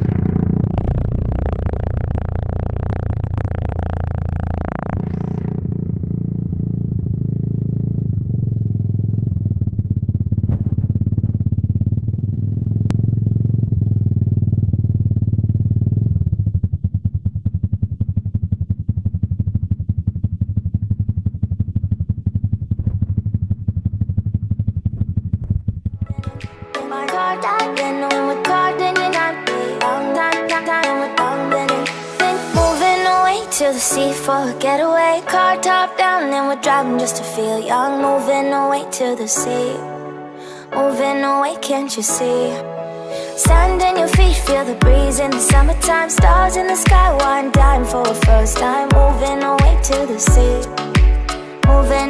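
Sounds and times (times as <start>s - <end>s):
exhaust popping: 0.0s - 26.8s, 43.4s - 52.0s
motorcycle engine revving and idling: 0.0s - 26.8s, 32.1s - 34.8s, 43.5s - 52.0s.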